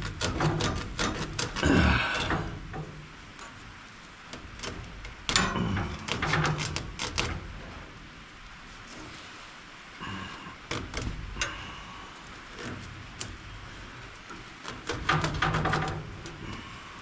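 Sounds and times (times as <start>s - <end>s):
tools scraping and knocking metal: 0.0s - 3.6s, 4.4s - 7.4s, 14.3s - 16.6s.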